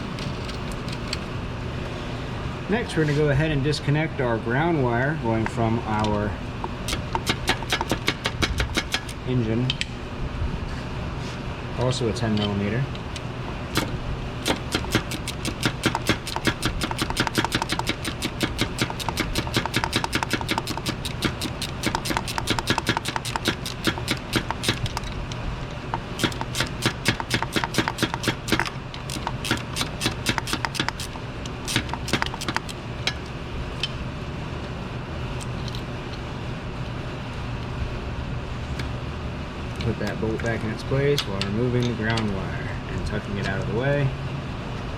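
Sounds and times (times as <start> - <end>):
hand ratchet clicking: 6.9 - 9.2, 13.8 - 25.2, 26.2 - 32.8.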